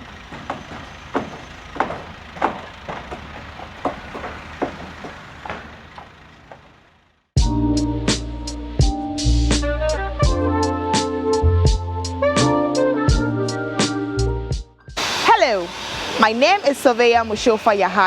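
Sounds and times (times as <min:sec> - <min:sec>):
hammering knocks: 0:00.0 - 0:06.8
low construction rumble: 0:00.0 - 0:07.3, 0:15.2 - 0:18.0
music with drums and guitar: 0:07.4 - 0:14.7.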